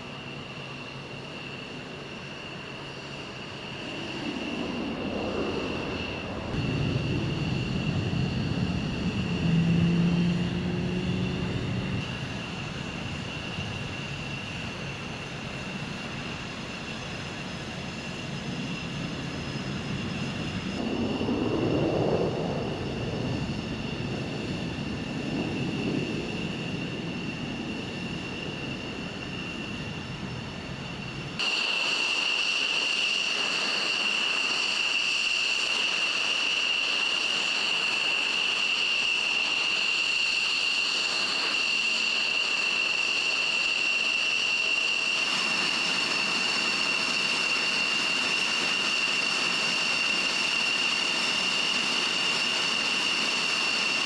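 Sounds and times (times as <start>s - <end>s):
jet engine whine: 0.0s - 54.0s.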